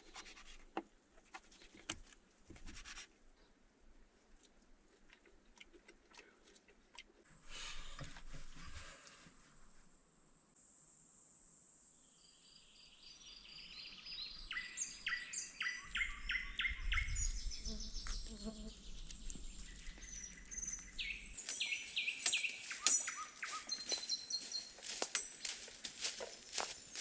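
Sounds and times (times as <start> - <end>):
songbirds chirping and singing: 13.0 - 27.0
high insect buzz: 17.5 - 19.8, 21.4 - 27.0.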